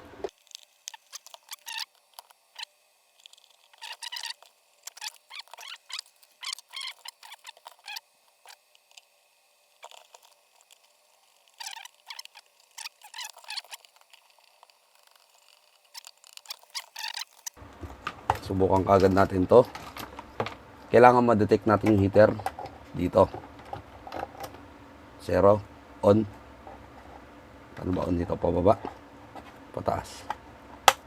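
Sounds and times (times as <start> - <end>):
plastic parts clicking and scraping: 0.2 - 9.1, 9.8 - 20.6.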